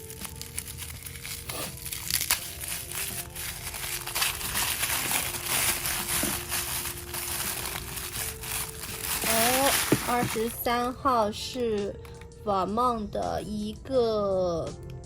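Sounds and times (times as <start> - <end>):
paper packaging crinkling: 0.0 - 10.9
soft background music: 0.0 - 15.0.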